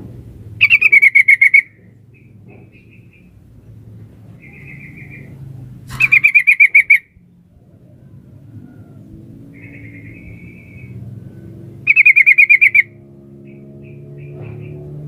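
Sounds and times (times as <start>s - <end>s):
bird chattering calls: 0.6s - 3.4s, 4.4s - 7.2s, 9.5s - 11.0s, 11.8s - 14.8s
faint short bird calls: 4.4s - 7.1s, 9.6s - 12.9s.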